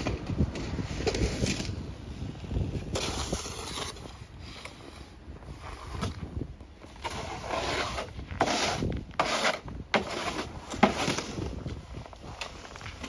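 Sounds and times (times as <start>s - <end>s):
snow shovels scraping snow: 2.7s - 6.3s, 6.9s - 13.0s.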